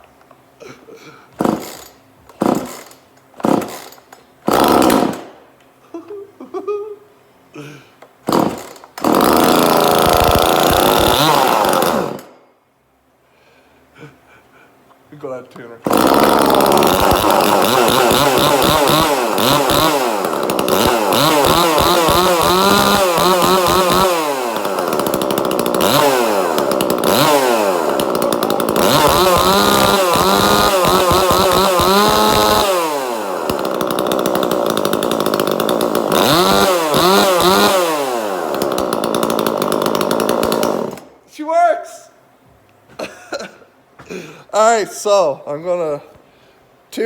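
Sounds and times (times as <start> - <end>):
chainsaw engine revving: 1.4 - 5.4, 8.2 - 12.4, 15.8 - 41.1.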